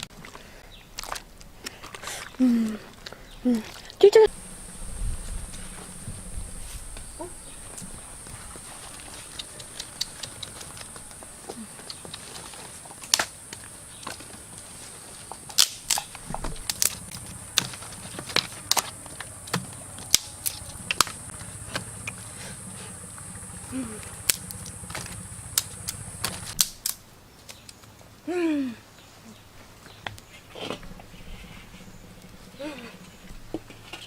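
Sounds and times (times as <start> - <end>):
high-pitched drone: 4.3 - 8.9, 30.8 - 33.6
sharp cracks and snaps: 9.1 - 11.2, 11.8 - 14.3, 15.5 - 22.2, 24.2 - 28.0.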